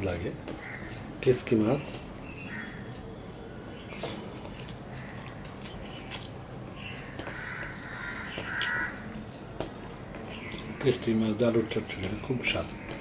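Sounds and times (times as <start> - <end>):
person chewing: 2.4 - 9.8
fingers mixing rice on steel plate: 7.0 - 13.0.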